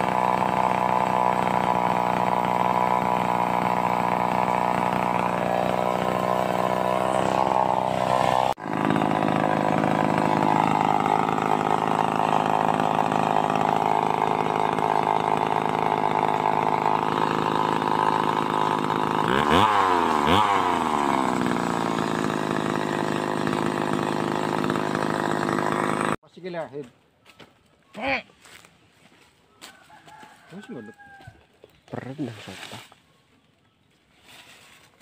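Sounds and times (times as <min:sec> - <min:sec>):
chainsaw running: 0:00.0 - 0:26.2.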